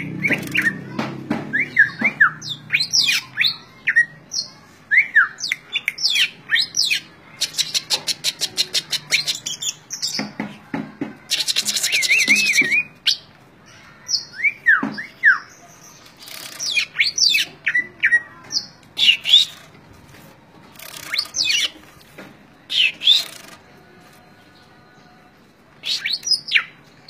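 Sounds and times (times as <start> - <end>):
bird whistling and chattering: 11.3 - 13.3, 16.2 - 19.7, 20.8 - 21.8, 22.7 - 23.4, 25.8 - 26.7.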